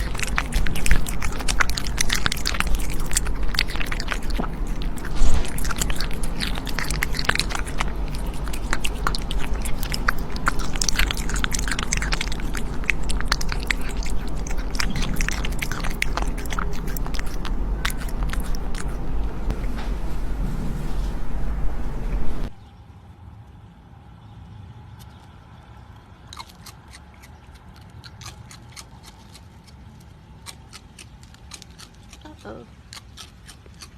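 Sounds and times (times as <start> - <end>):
animal chewing crunchy food: 0.0 - 22.6, 25.0 - 33.9.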